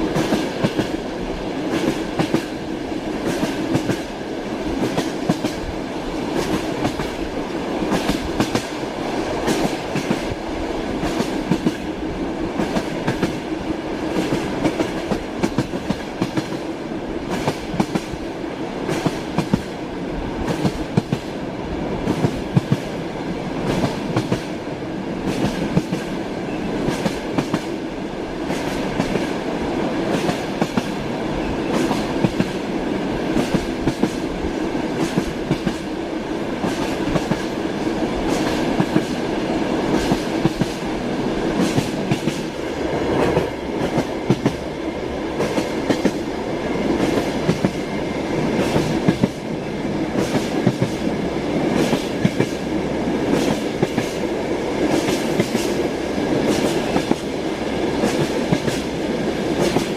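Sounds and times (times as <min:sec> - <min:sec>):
train wheels clacking: 0:00.0 - 0:07.3, 0:07.9 - 0:08.8, 0:09.4 - 0:10.4, 0:11.0 - 0:12.0, 0:12.6 - 0:13.5, 0:14.1 - 0:16.7, 0:17.3 - 0:18.2, 0:22.0 - 0:22.9, 0:25.2 - 0:27.8, 0:28.4 - 0:29.4, 0:30.1 - 0:32.7, 0:33.3 - 0:34.3, 0:34.9 - 0:35.9, 0:36.6 - 0:37.6, 0:38.2 - 0:40.9, 0:41.5 - 0:44.7, 0:45.3 - 0:59.9.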